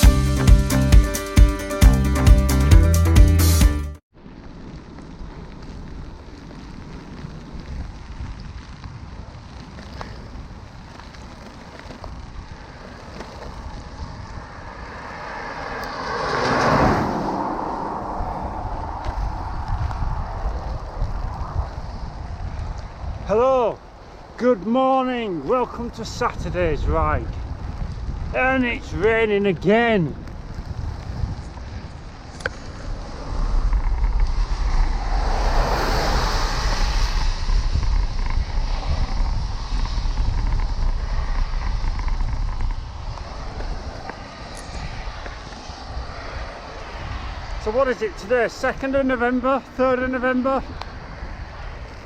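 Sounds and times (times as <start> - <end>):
wind rumble on microphone: 4.2 - 52.0
tyres hissing on wet road: 4.8 - 23.2, 30.5 - 52.0.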